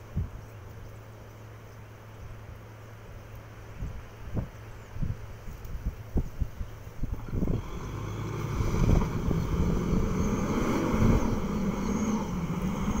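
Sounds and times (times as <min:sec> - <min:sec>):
engine revving under load: 0:07.2 - 0:13.0.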